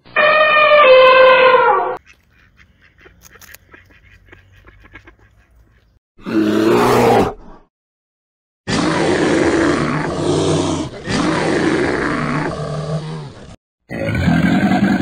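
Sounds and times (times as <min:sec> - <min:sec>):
loud rough animal call: 0:00.2 - 0:02.0
bird honking call: 0:00.2 - 0:05.5.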